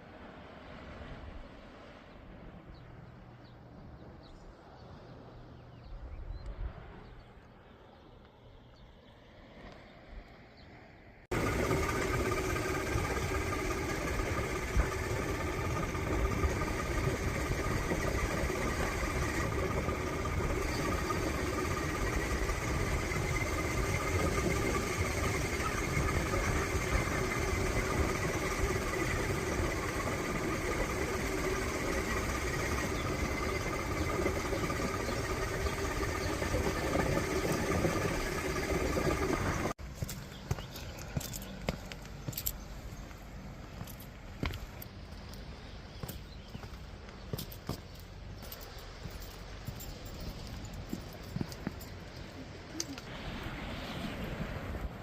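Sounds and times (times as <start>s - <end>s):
engine running steadily: 11.3s - 55.0s.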